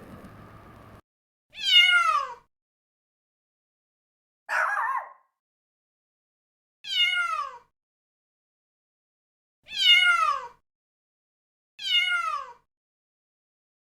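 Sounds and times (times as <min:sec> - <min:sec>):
electronic toy cat meowing: 0:01.6 - 0:02.5, 0:06.9 - 0:07.7, 0:09.7 - 0:10.6, 0:11.8 - 0:12.6.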